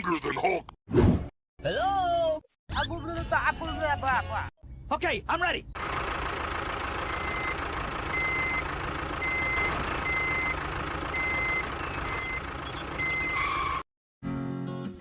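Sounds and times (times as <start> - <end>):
vehicle reversing alarm beeping: 6.9 - 13.8.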